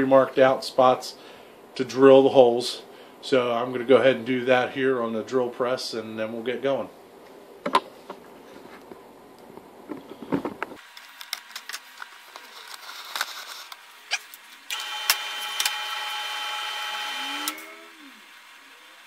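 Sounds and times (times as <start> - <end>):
drill press whining: 14.7 - 19.0.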